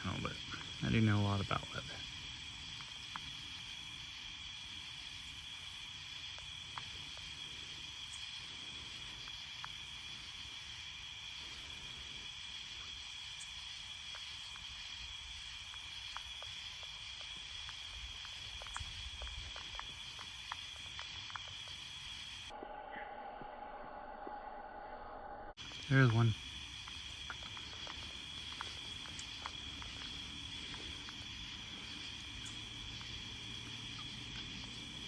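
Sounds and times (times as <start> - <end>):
night insects chorus: 0.0 - 22.7, 25.6 - 35.0
faint ticks: 2.7 - 3.5, 6.2 - 10.2, 12.8 - 22.5, 25.6 - 35.0.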